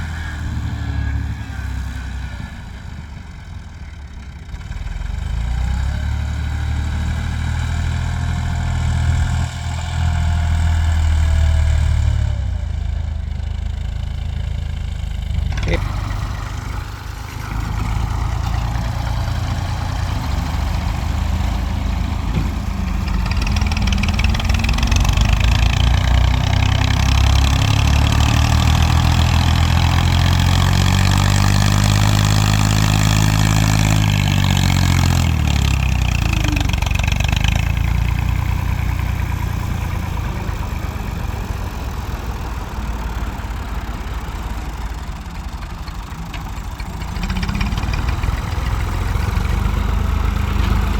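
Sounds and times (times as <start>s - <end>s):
tractor diesel engine revving: 0.0s - 50.9s.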